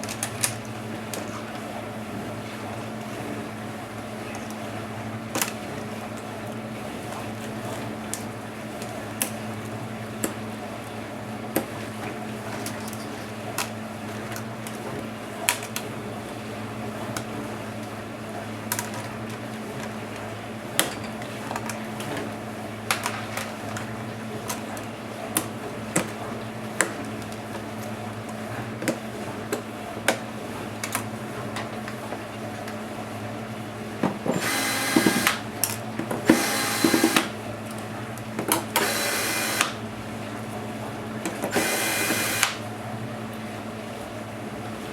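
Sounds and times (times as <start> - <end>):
electric screwdriver whirring: 34.3 - 35.4, 36.2 - 37.3, 38.8 - 39.8, 41.5 - 42.6.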